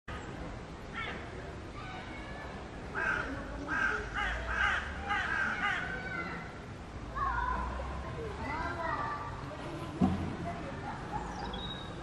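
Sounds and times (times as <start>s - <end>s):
bird calls: 11.1s - 12.0s.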